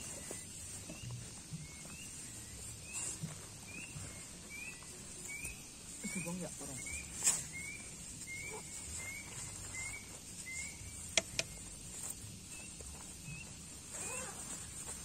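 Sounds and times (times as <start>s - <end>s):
bird rising chirp: 0.0s - 11.8s.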